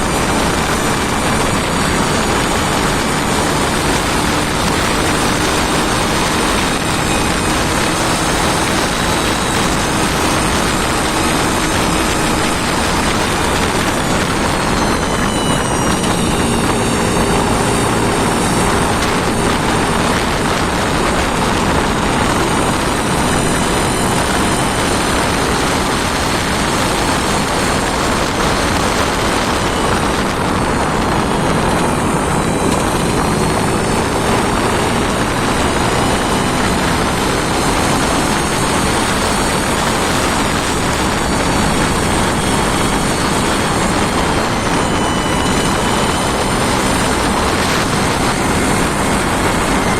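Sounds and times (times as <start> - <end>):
engine running steadily: 0.0 - 49.9.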